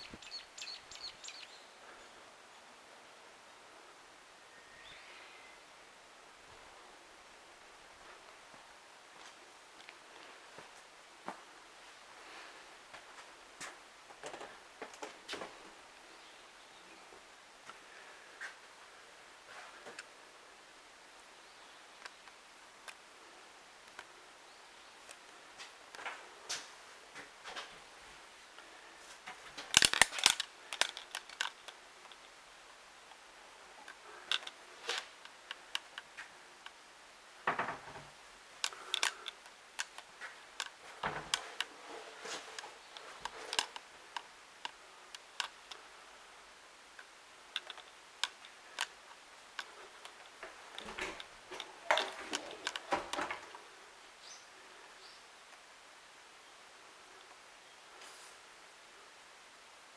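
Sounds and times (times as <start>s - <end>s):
camera handling clicks and knocks: 29.7s - 31.6s.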